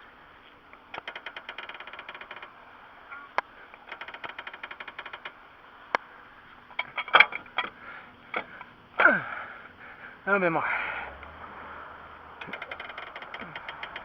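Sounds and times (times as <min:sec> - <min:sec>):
ratchet clicking rapidly: 0:00.8 - 0:02.6, 0:03.8 - 0:05.4, 0:12.4 - 0:14.0
metallic knocks and clanks: 0:06.7 - 0:08.7, 0:12.4 - 0:14.0.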